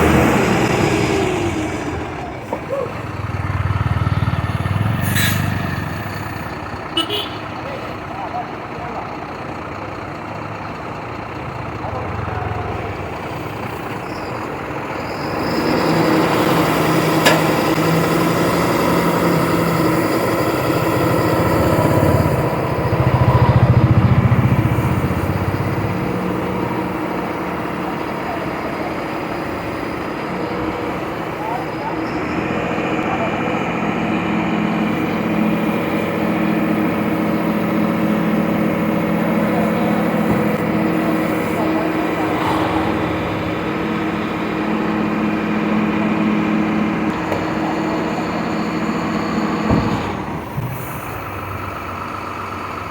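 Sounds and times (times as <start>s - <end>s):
truck diesel engine running: 0.0s - 52.9s.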